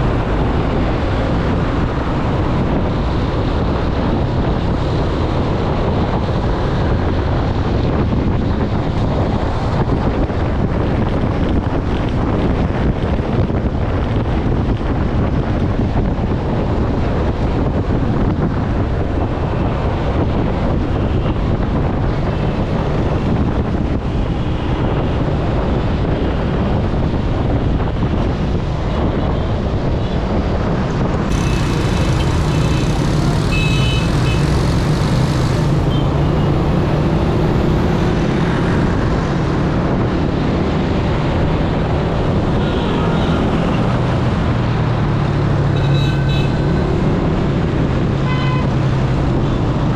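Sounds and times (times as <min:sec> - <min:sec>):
road traffic noise: 0:00.0 - 0:49.9
low engine hum: 0:30.2 - 0:42.4.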